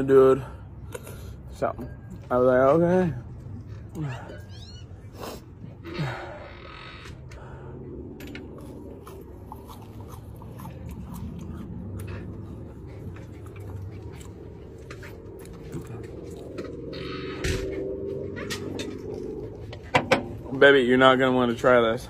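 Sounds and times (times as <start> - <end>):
person chewing and biting: 8.5 - 16.9.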